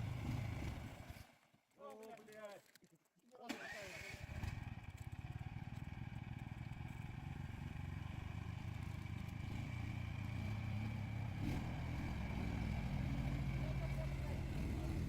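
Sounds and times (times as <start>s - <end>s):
vehicle engine running: 4.3s - 15.0s.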